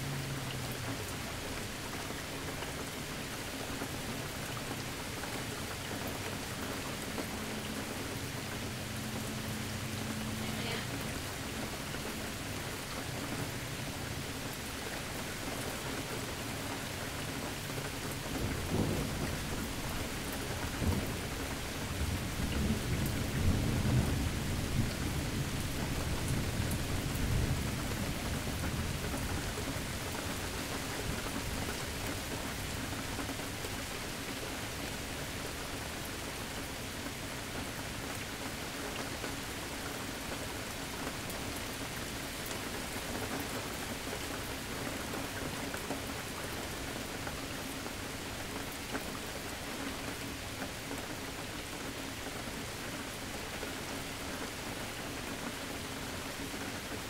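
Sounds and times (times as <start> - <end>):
steady rain falling: 0.0 - 57.0
thunder rumbling: 18.5 - 29.0.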